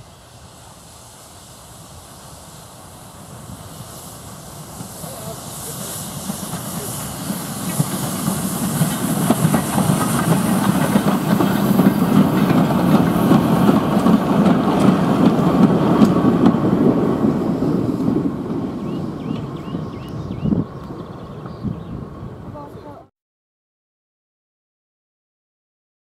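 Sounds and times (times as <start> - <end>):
goods train rolling past: 0.0 - 23.1
wheels clicking on rail joints: 4.8 - 17.3.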